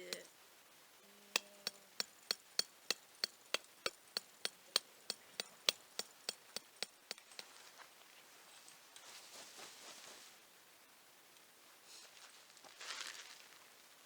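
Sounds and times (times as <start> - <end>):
hammer striking tent peg: 1.4 - 7.5.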